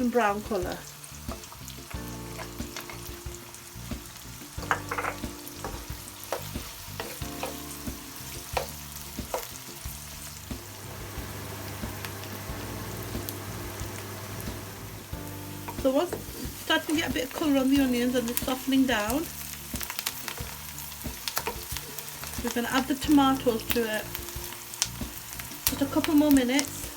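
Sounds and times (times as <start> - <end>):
onions sizzling in hot oil: 0.0 - 26.9
utensil knocking against pan: 4.0 - 9.6.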